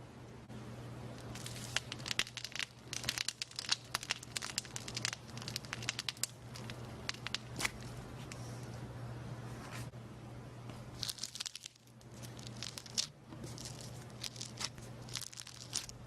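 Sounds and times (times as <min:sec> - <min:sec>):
slime crackling and popping: 0:01.2 - 0:07.9, 0:11.0 - 0:16.0
low hum: 0:06.2 - 0:16.0.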